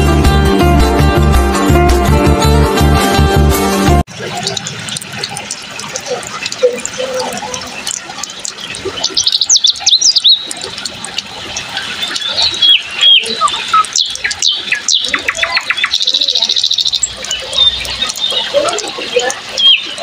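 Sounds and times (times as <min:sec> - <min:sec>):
birds chirping and whistling: 0:08.5 - 0:10.7, 0:11.8 - 0:20.0
bird trill: 0:08.6 - 0:10.6, 0:12.0 - 0:18.9, 0:19.5 - 0:20.0.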